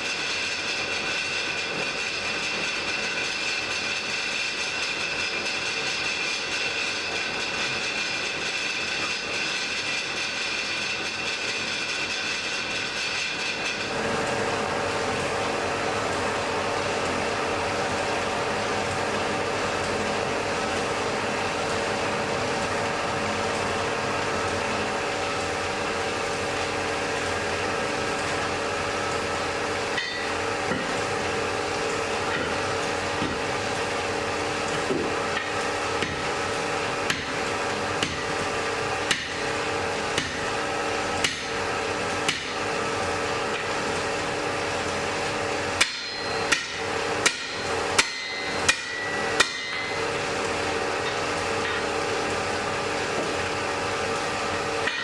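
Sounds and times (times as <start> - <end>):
hammer striking anvil: 30.0 - 30.9, 41.2 - 41.5, 45.8 - 50.0.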